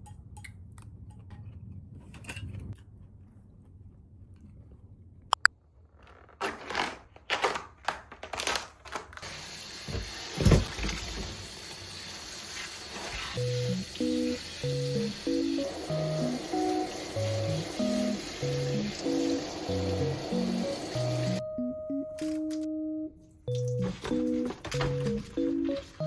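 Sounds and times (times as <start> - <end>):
plucked guitar music: 13.4 - 26.0.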